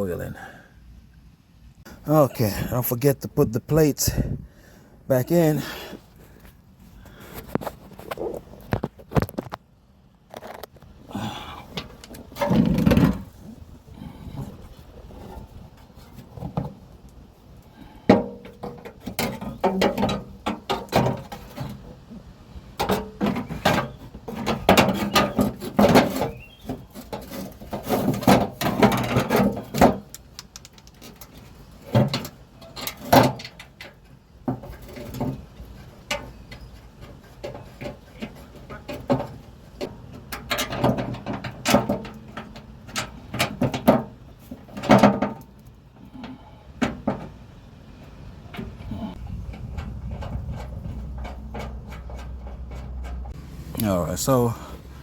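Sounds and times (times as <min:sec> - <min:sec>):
metal plate and bolts clattering: 0:18.0 - 0:21.9, 0:22.8 - 0:30.1, 0:30.8 - 0:47.4, 0:48.5 - 0:53.3.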